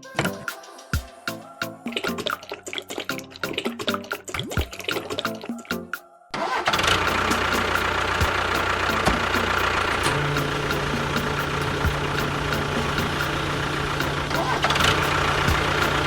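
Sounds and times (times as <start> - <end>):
vehicle engine starting and idling: 6.4 - 16.0
deep steady hum: 7.0 - 16.0.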